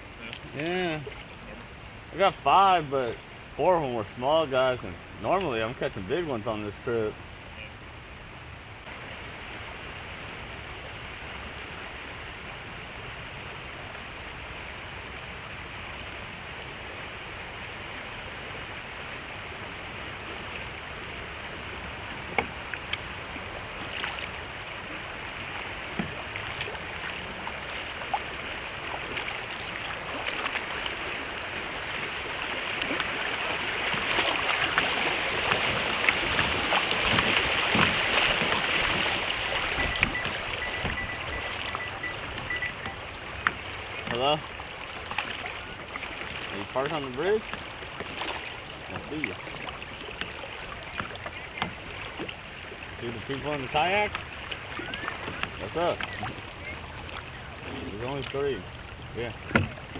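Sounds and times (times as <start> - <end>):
river water rushing: 0.0 - 59.9
water drips: 22.1 - 59.9
light knocks on kayak: 39.8 - 41.4, 59.4 - 59.9.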